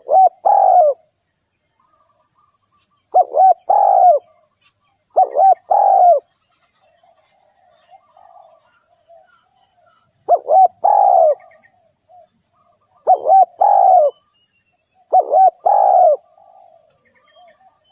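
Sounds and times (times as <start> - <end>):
dove cooing: 0.0 - 1.1, 3.1 - 4.4, 5.1 - 6.3, 7.0 - 14.3, 15.0 - 17.9
faint bird chirps: 0.0 - 17.9.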